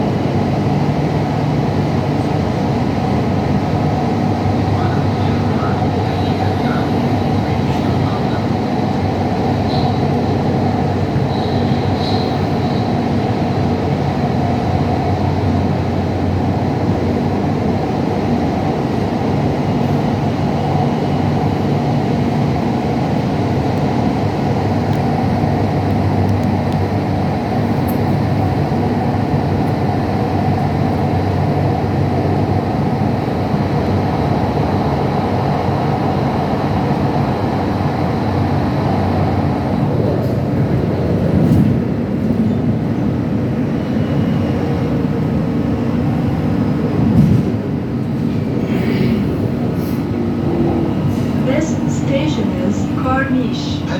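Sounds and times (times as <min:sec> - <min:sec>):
train rumbling inside carriage: 0:00.0 - 0:53.9.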